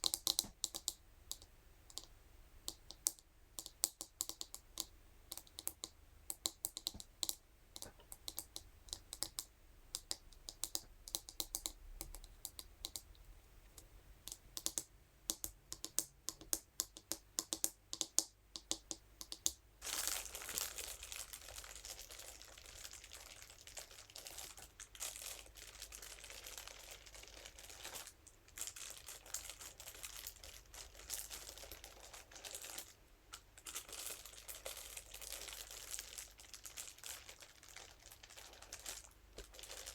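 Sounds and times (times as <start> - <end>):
brush tapping and clicking: 0.0 - 19.6.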